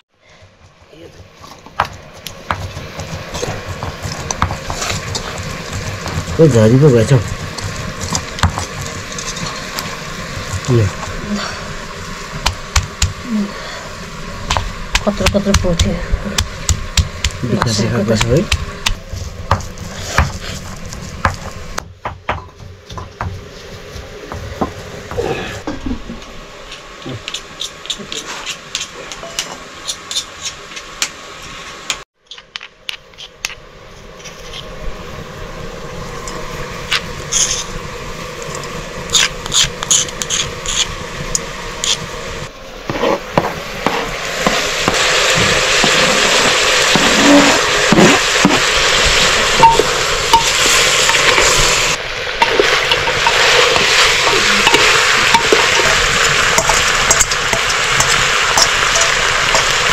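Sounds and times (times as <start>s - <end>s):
food sizzling in hot pan: 2.8s - 21.8s, 43.3s - 59.9s
utensils knocking against pots: 52.4s - 59.8s.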